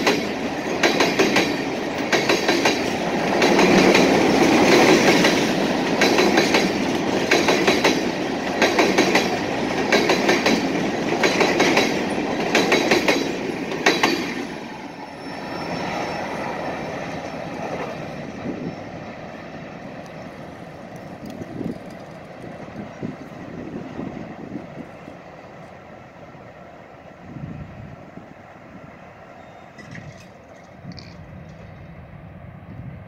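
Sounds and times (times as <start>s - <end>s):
train wheels clicking on rail joints: 0.0s - 25.8s, 29.4s - 32.1s
train rumble: 0.0s - 33.0s.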